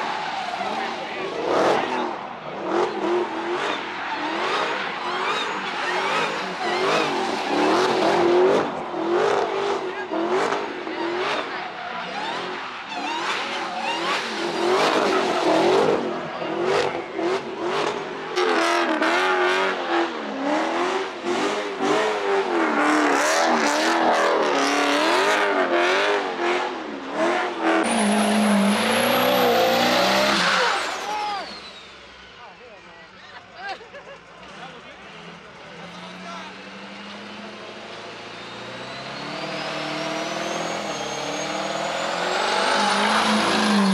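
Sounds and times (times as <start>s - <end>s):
car engines revving hard: 0.0s - 32.3s, 34.1s - 43.9s
diesel engine revving with whistle: 0.0s - 32.3s, 34.5s - 43.9s
tyres screeching: 27.8s - 31.9s.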